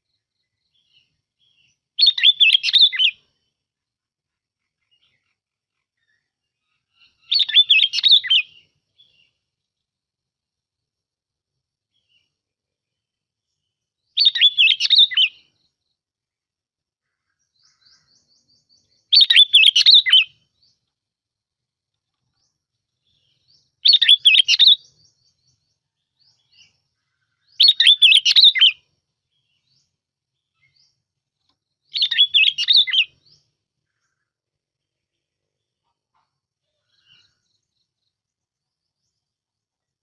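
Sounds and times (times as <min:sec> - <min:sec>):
bulbul singing warbling phrases: 0:00.8 - 0:03.2, 0:17.6 - 0:20.5, 0:23.1 - 0:26.8, 0:27.5 - 0:29.8, 0:31.9 - 0:34.2.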